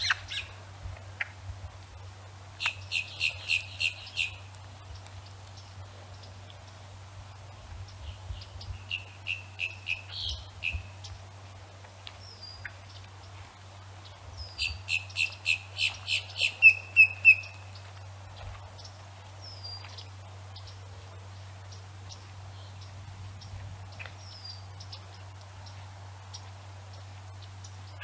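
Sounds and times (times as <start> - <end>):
bird chirping: 0.0 - 0.6, 2.6 - 6.8, 7.8 - 11.2, 14.0 - 28.0.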